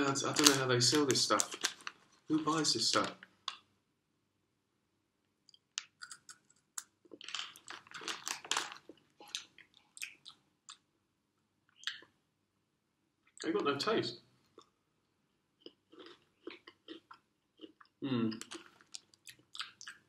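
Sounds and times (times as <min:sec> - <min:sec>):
crunchy snack being chewed: 0:05.8 - 0:10.8, 0:15.6 - 0:20.0.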